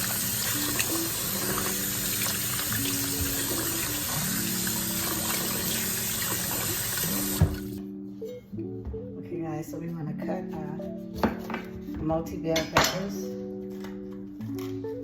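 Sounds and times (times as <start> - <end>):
faucet water running into sink: 0.0 - 7.8
background music: 0.0 - 15.0.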